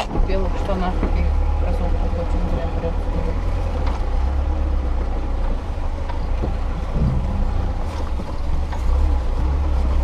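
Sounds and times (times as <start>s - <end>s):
car knocking on rough track: 0.0s - 1.4s, 2.3s - 10.0s
car engine rumble from inside: 0.0s - 10.0s.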